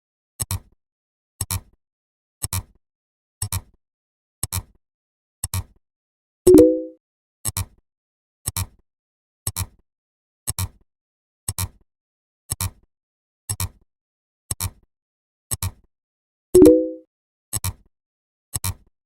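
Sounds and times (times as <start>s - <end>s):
double click ticking: 6.5s - 6.9s, 16.6s - 17.0s
short ringing ding: 6.5s - 7.0s, 16.6s - 17.0s.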